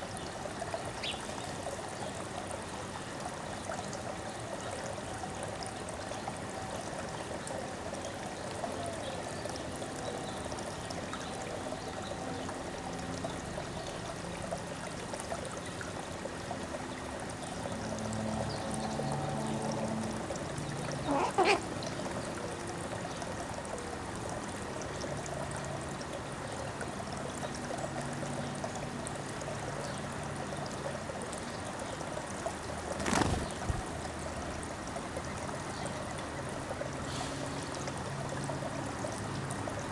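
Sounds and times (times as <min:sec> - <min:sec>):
running water trickling: 0:00.0 - 0:39.9.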